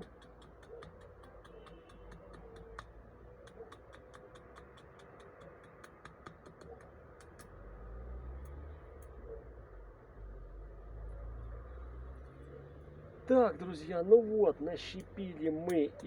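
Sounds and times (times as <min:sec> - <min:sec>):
faint regular ticking: 0:00.0 - 0:07.5.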